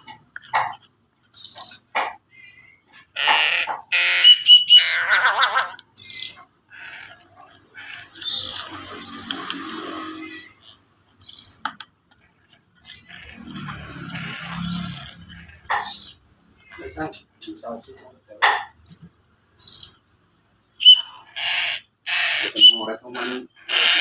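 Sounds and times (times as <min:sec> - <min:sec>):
young crow harsh begging calls: 0:03.1 - 0:07.2, 0:20.8 - 0:22.8, 0:23.6 - 0:24.0.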